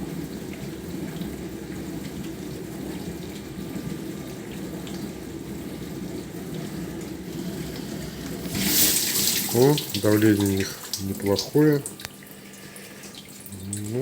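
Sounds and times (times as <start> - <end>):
dishwasher pump humming: 0.0 - 14.0
water spraying: 6.6 - 14.0.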